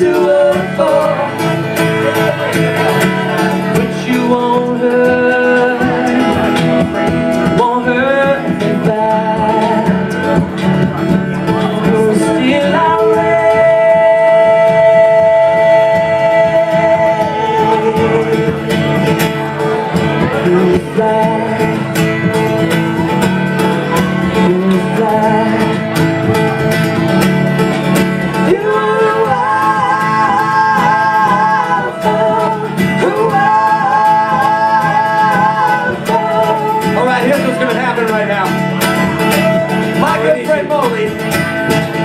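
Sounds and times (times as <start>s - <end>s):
person singing: 0.0s - 22.5s, 23.6s - 26.6s, 27.8s - 40.8s
strummed acoustic guitars: 0.0s - 42.0s.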